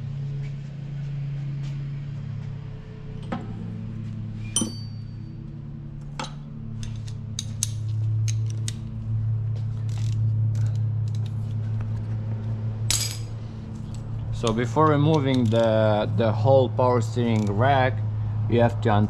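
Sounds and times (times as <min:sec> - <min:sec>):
steady low hum: 0:00.0 - 0:19.0
hand tools clicking on metal: 0:13.8 - 0:16.0, 0:17.1 - 0:17.6.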